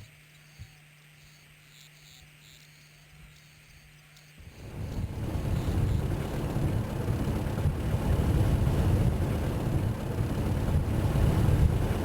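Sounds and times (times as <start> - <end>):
wind noise on microphone: 4.4 - 12.0.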